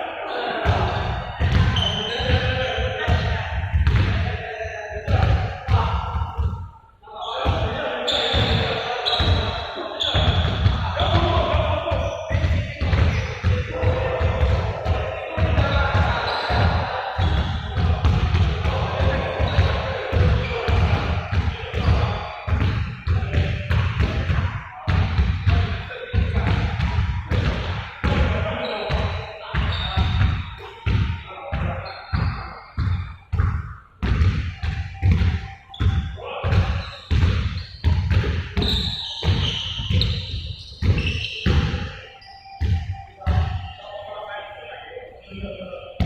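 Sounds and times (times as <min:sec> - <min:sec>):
balls bouncing on hard floor: 0:00.6 - 0:04.3, 0:08.4 - 0:42.0, 0:42.6 - 0:43.6
ball bouncing on hard floor: 0:01.4 - 0:02.5, 0:03.1 - 0:04.2, 0:28.9 - 0:40.2
high squeaks: 0:01.7 - 0:02.8, 0:07.2 - 0:13.4, 0:34.6 - 0:44.0.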